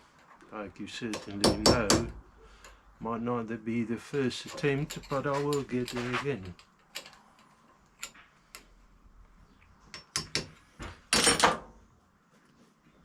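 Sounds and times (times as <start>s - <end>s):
hammer tapping a metal chisel: 1.1s - 2.2s, 9.9s - 10.6s.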